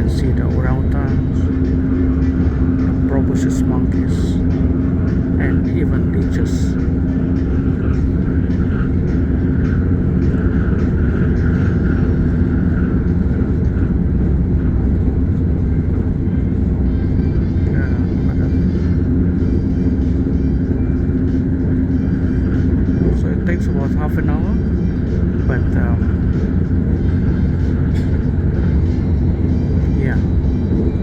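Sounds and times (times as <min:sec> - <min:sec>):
electric train running: 0:00.0 - 0:31.0.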